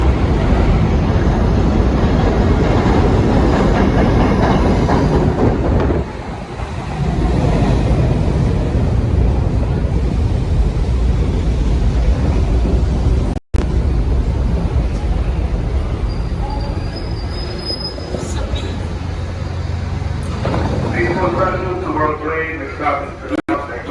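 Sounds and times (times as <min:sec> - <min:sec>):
subway train rumbling on rails: 0:00.0 - 0:23.9
wheel clatter: 0:20.2 - 0:21.9.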